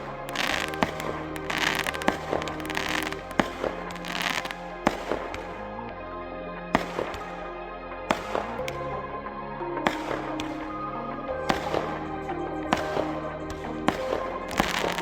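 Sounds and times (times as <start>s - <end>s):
fireworks bangs: 0.0s - 5.6s, 6.8s - 7.4s, 11.5s - 12.1s, 12.7s - 15.0s
fireworks crackling: 0.0s - 5.6s, 6.8s - 7.5s, 11.5s - 15.0s
music playing: 0.0s - 15.0s.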